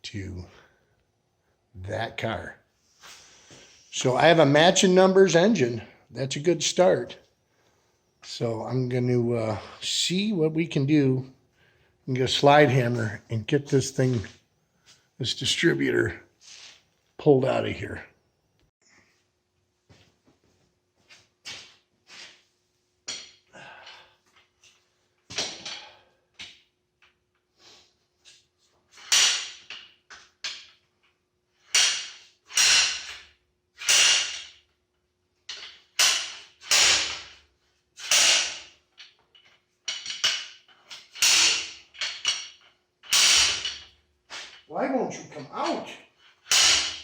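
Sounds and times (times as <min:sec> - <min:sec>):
slide hammer metal blows: 0:46.5 - 0:47.0.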